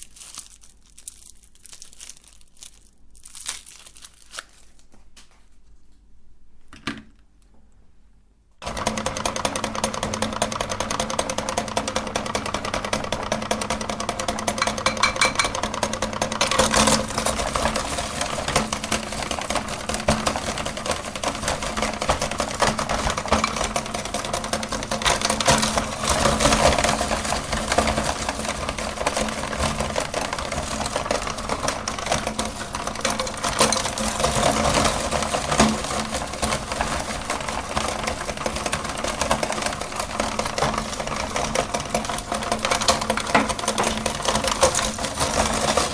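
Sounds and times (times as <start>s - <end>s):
lollipops crunching and crackling: 0.0s - 5.0s
meat grinder motor hum: 8.6s - 45.9s.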